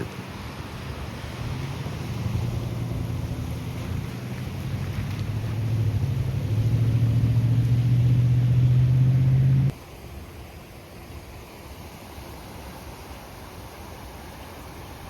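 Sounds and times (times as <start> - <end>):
vehicle engine humming: 1.4 - 9.8.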